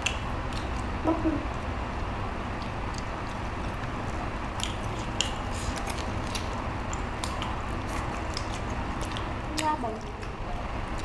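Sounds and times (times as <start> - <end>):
wet chewing and tearing meat: 2.6 - 11.0.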